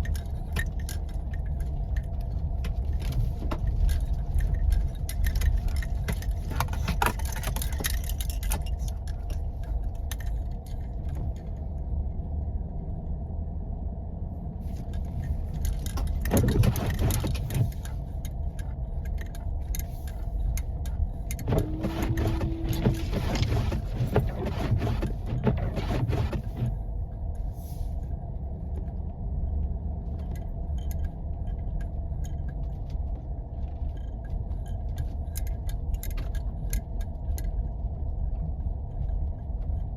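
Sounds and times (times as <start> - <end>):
interior rattling and clicking: 0.0 - 11.4, 14.8 - 26.9
engine and tyres rumbling: 0.0 - 39.9.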